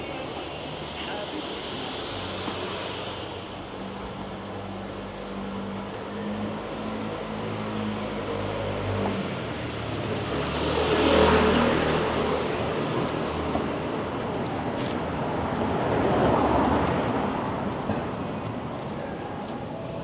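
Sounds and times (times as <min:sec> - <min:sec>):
vehicle passing by: 0:05.4 - 0:13.8.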